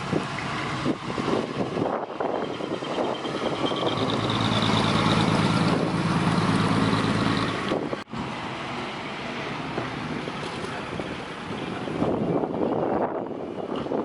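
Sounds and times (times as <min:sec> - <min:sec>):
truck engine with open exhaust: 0:00.0 - 0:14.0.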